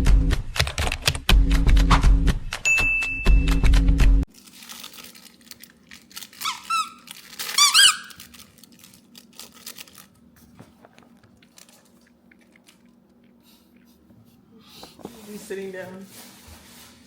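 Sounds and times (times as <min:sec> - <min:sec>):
room noise: 0:06.2 - 0:17.0
rapid high-pitched squeaks: 0:06.4 - 0:08.2.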